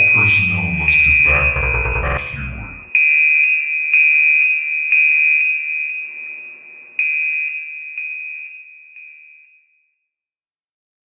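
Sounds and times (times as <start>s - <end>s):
high electronic alert tone: 0.0s - 3.0s.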